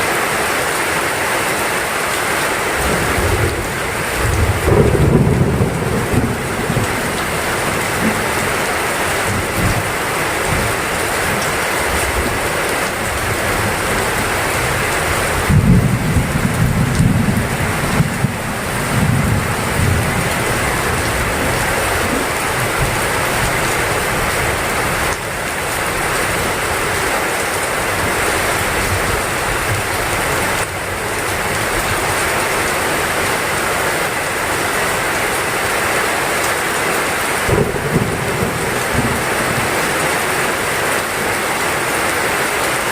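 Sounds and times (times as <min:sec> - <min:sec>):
heavy rain: 0:00.0 - 0:42.9
thunder rumbling: 0:02.8 - 0:11.4, 0:12.0 - 0:32.2, 0:37.5 - 0:40.0.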